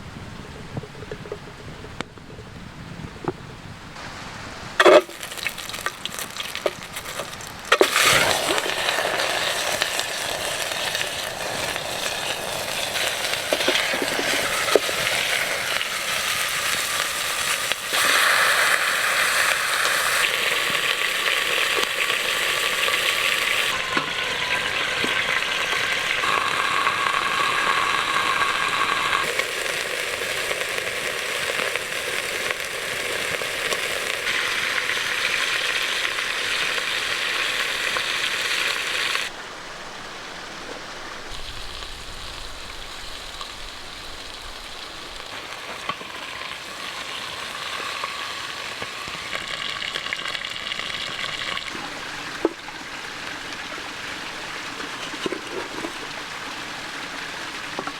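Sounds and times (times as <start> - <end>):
small crackles: 4.8 - 24.1, 25.0 - 39.4, 40.6 - 52.7
chicken sizzling in a pan: 4.8 - 39.3, 41.3 - 56.7.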